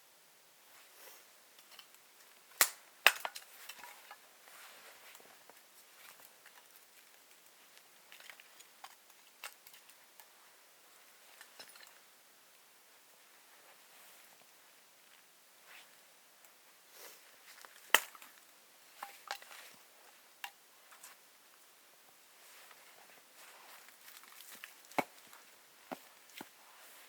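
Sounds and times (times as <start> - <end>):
dry wood cracking: 1.6 - 4.2, 17.6 - 18.4, 23.8 - 26.5
wood snapping and crunching: 2.6 - 4.2, 17.6 - 18.4.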